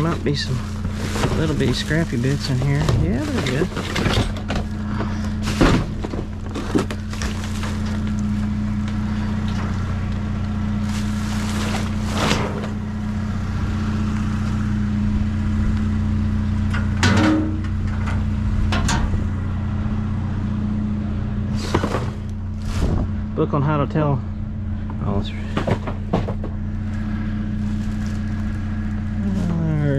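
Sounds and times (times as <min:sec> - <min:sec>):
trash rustling in a dumpster: 0:00.0 - 0:13.1, 0:21.5 - 0:23.2, 0:24.9 - 0:29.9
low mechanical hum: 0:00.0 - 0:29.9.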